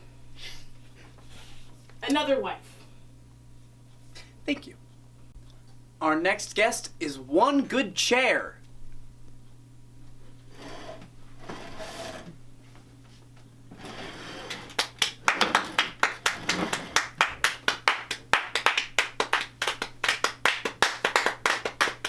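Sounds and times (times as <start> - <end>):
people clapping: 14.3 - 22.0.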